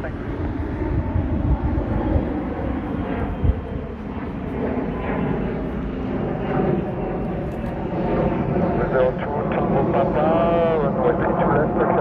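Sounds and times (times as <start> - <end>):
wind thumps on microphone: 0.0 - 3.9
jet engine rumble: 0.0 - 12.0.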